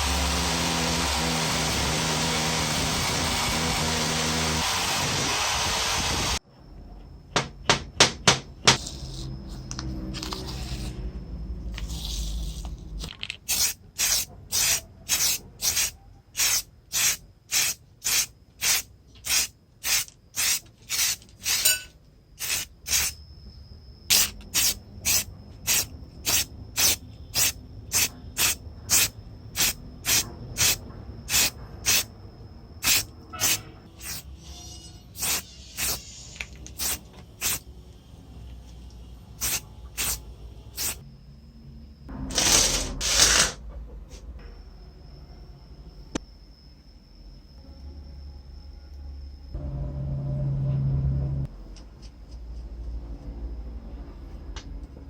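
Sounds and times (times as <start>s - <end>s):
faint high whine: 2.8s - 13.1s, 13.8s - 54.9s
aerosol spray bursts hissing: 13.5s - 21.6s, 22.4s - 23.1s, 24.1s - 32.1s, 32.8s - 34.3s, 35.2s - 36.2s, 36.8s - 37.6s, 39.4s - 40.2s, 40.8s - 41.0s.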